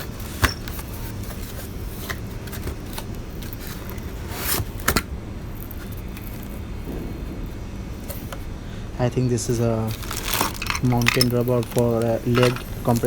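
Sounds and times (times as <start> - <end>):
steady low hum: 0.0 - 13.0
plastic cover snapping: 9.8 - 13.0
plastic cover scrapes and clicks: 9.9 - 13.0.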